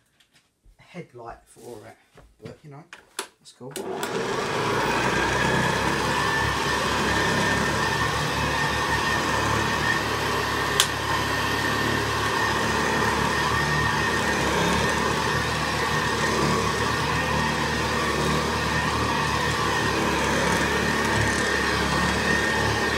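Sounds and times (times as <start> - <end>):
vacuum cleaner running: 3.7 - 22.9
sharp click: 10.8 - 11.0.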